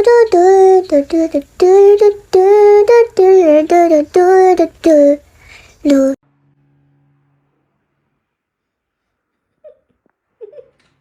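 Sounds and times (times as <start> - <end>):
high-pitched voice singing: 0.0 - 5.2, 5.8 - 6.2.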